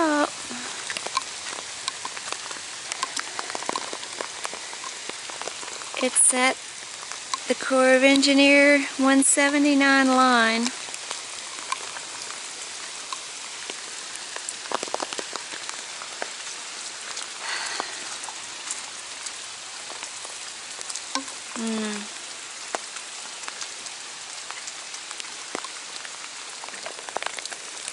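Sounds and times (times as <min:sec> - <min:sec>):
heavy rain falling: 0:00.0 - 0:27.9
raindrops ticking: 0:00.0 - 0:27.9.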